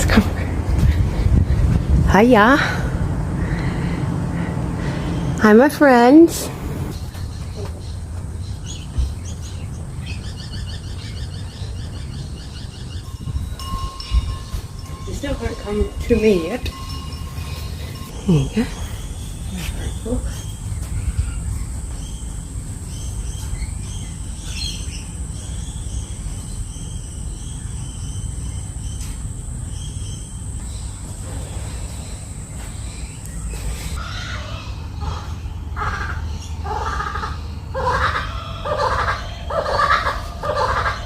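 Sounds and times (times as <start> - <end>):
kookaburras laughing chorus: 35.0 - 41.0.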